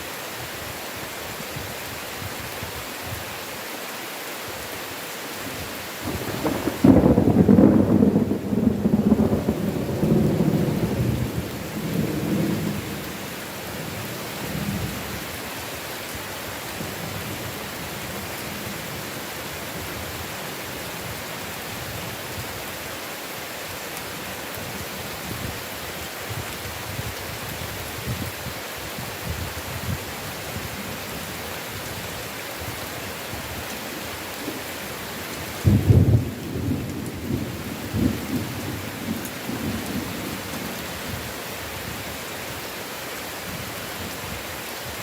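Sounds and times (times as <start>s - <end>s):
heavy rain falling: 0.0s - 45.0s
thunder rumbling: 6.0s - 15.0s, 35.5s - 41.2s.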